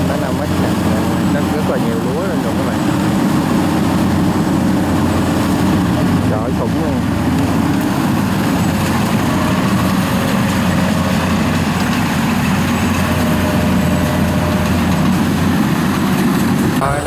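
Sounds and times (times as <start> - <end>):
combine harvester engine drone: 0.0 - 17.0.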